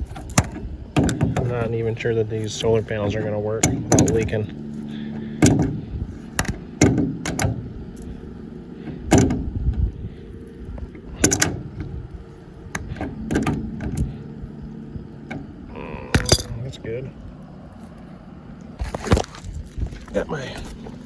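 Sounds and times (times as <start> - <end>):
metallic clinks and knocks: 16.2 - 16.6.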